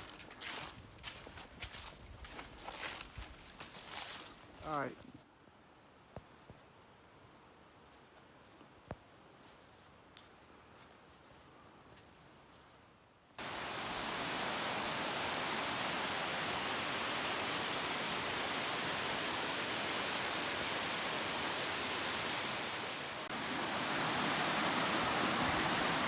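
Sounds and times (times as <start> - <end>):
waterfall rushing: 13.4 - 26.0.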